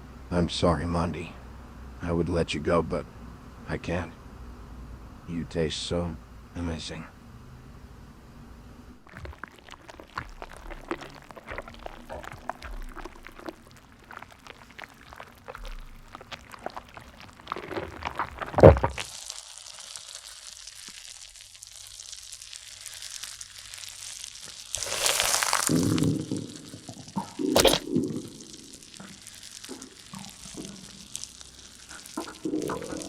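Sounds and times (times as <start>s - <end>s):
wet mouth eating sounds: 9.0s - 33.0s
loud gulp: 9.1s - 19.1s, 24.8s - 33.0s
steady hiss: 9.2s - 33.0s.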